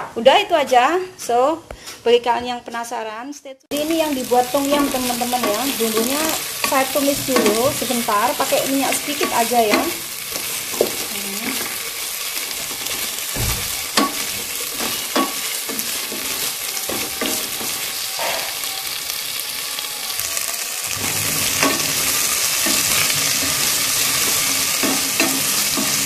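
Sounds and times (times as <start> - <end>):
herbs sizzling in oil: 3.7 - 26.0
wooden spatula knocking and scraping: 4.7 - 11.9, 12.6 - 17.8.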